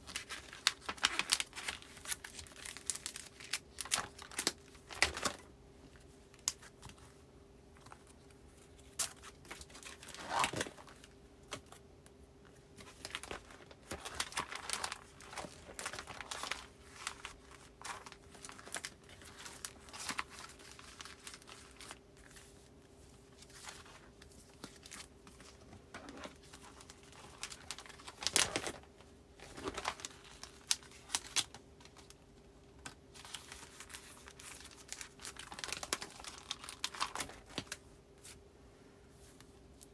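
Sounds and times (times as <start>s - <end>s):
plastic sleeves crinkling: 0.0s - 7.2s, 7.8s - 11.8s, 12.5s - 38.4s
faint steady hum: 0.0s - 39.9s.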